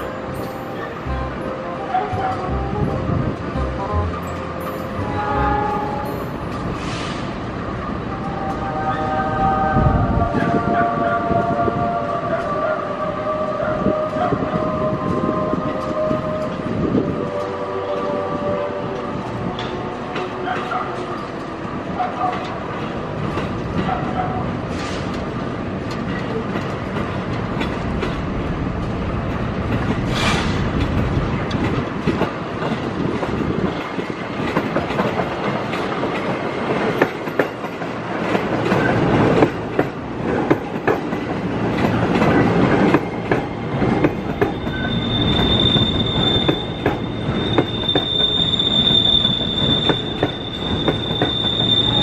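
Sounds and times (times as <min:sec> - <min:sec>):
high flange squeal: 0:04.2 - 0:22.2, 0:42.5 - 0:52.0.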